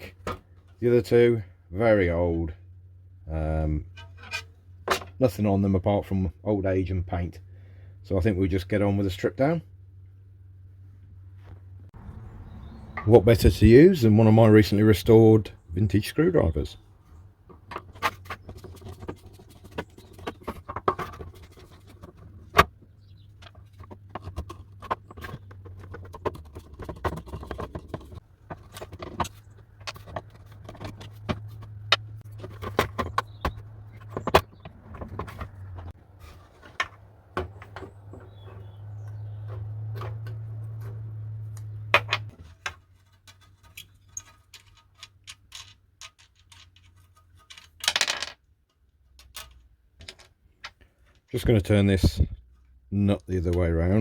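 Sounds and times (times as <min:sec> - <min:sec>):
steady scraping: 0:12.8 - 0:45.5
small metal parts knocking: 0:42.0 - 0:50.4
screwdriver clicking and scraping metal: 0:42.5 - 0:47.9.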